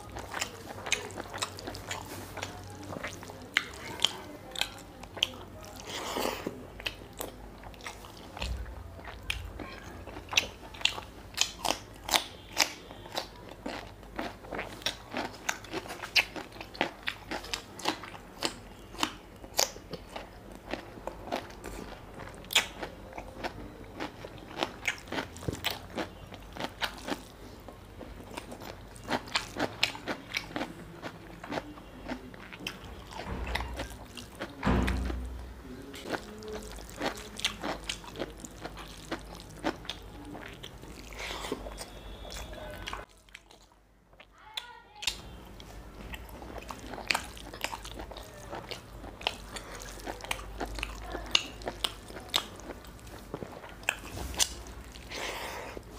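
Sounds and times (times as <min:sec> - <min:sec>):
person chewing food: 0:00.0 - 0:44.4, 0:45.0 - 0:55.9
loud thump: 0:34.6 - 0:35.6.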